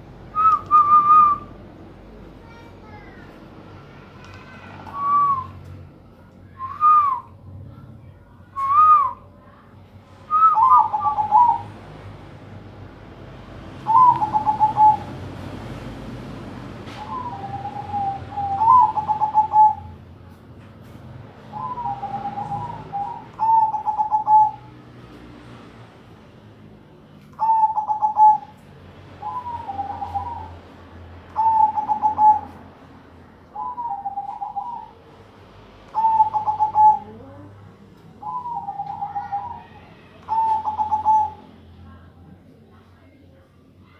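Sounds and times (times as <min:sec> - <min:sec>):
doves cooing: 0:10.3 - 0:11.8, 0:13.8 - 0:15.2, 0:16.9 - 0:20.0, 0:21.5 - 0:24.7, 0:27.4 - 0:28.6, 0:29.2 - 0:30.6, 0:31.3 - 0:32.7, 0:33.6 - 0:35.0, 0:35.9 - 0:37.5, 0:38.2 - 0:41.5.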